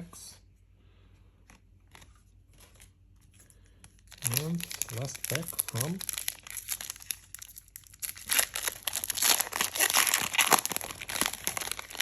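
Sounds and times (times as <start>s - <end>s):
foil wrapper crinkling and tearing: 4.0s - 12.0s.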